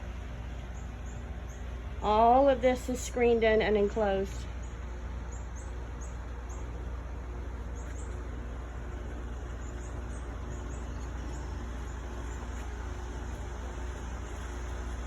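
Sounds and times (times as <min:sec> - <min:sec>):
outdoor rumble and hiss: 0:00.0 - 0:15.0
small bird chirping: 0:00.5 - 0:01.8, 0:04.6 - 0:06.9, 0:07.6 - 0:08.5, 0:09.4 - 0:13.9.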